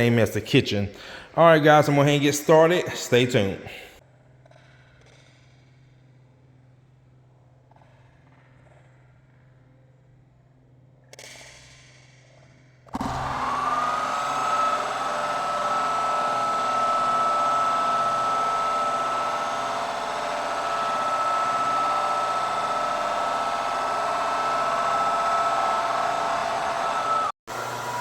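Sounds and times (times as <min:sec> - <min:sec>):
electric motor whine: 0:12.9 - 0:28.0.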